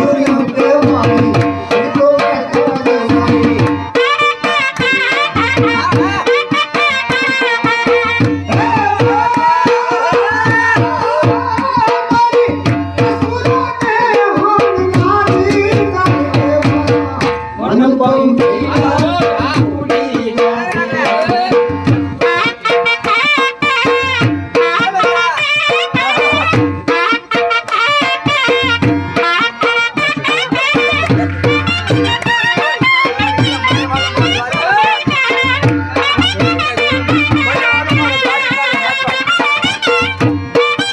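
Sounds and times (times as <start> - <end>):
drum beating steady rhythm: 0.0 - 40.9
shawm playing folk melody: 22.0 - 40.9.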